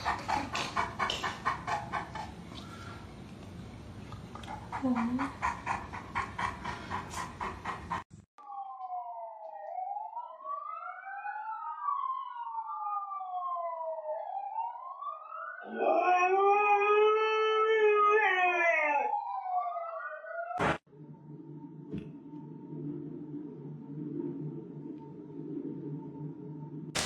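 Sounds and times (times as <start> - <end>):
siren wailing: 8.4 - 27.0
dog howling: 15.6 - 19.3.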